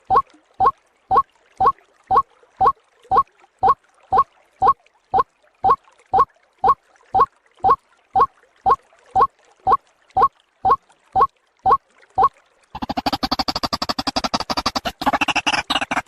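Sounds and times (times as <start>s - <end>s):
waterhen calling: 11.2s - 16.0s.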